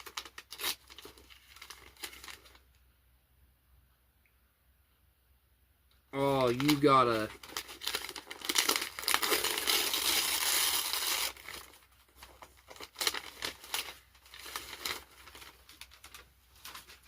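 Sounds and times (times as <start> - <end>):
wrapping paper tearing and crumpling: 0.0 - 2.6, 6.2 - 17.0.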